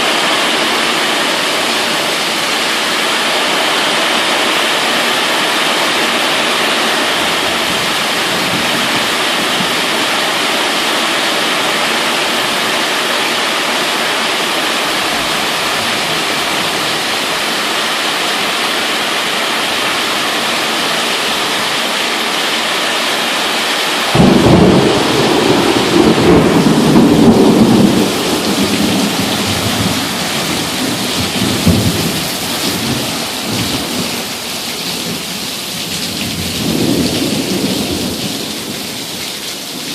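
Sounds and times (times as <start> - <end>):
heavy rain falling: 0.0 - 39.9
thunder clap rumbling: 24.1 - 34.4, 35.0 - 38.9.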